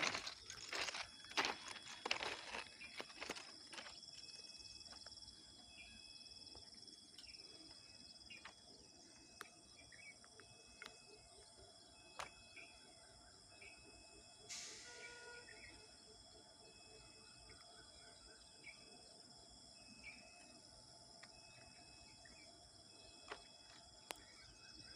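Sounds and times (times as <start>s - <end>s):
insect chirring: 0.0s - 18.0s.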